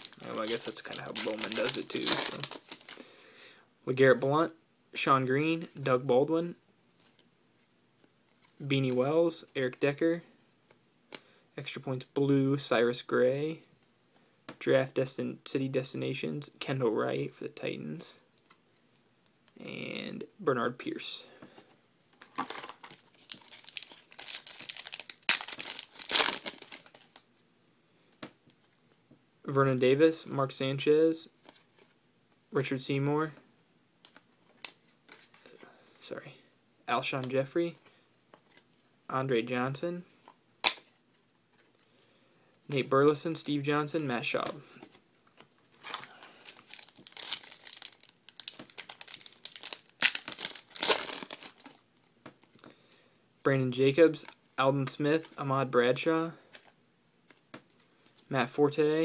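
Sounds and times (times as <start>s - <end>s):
foil wrapper crinkling and tearing: 0.0s - 3.0s, 22.2s - 27.2s, 45.8s - 51.8s.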